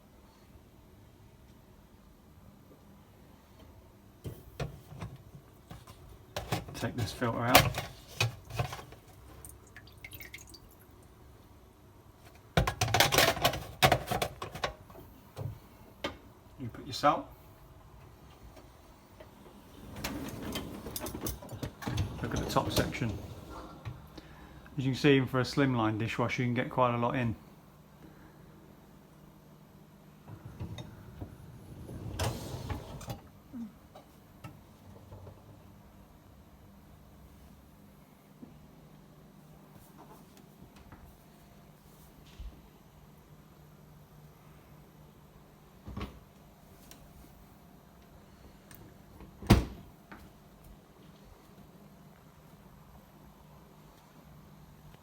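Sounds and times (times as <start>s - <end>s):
faint water drips: 9.4s - 11.0s
plastic clattering and knocking: 12.6s - 14.8s
rack rattling slide: 19.6s - 23.8s, 31.7s - 33.2s.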